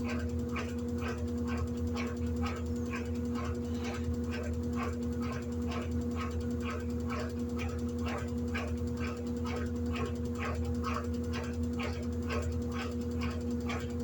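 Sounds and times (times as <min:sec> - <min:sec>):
washing machine motor hum: 0:00.0 - 0:14.0.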